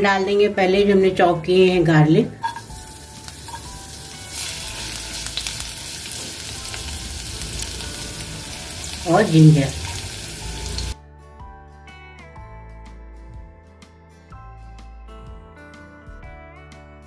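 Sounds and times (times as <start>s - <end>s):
background music: 0.0s - 17.0s
garlic and ginger sizzling in oil: 2.4s - 11.0s.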